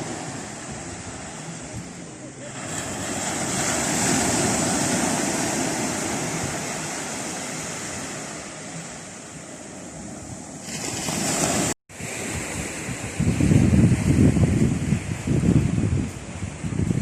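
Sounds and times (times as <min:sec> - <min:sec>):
ocean waves washing in: 0:00.0 - 0:17.0.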